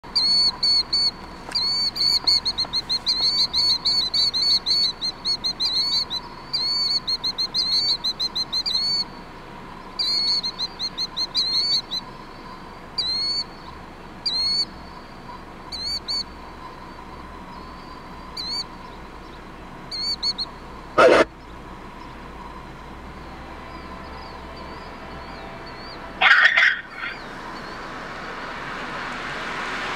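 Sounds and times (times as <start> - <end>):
bird calling shrill notes: 25.7 - 27.8.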